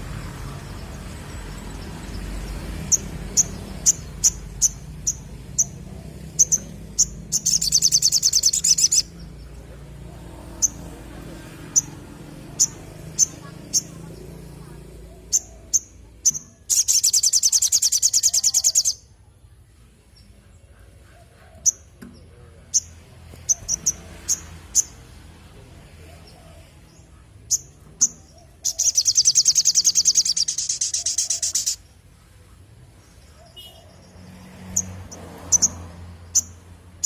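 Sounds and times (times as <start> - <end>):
bird fast trill: 1.5 - 9.3, 15.3 - 19.0, 27.5 - 31.9
bird high chips: 28.7 - 31.8.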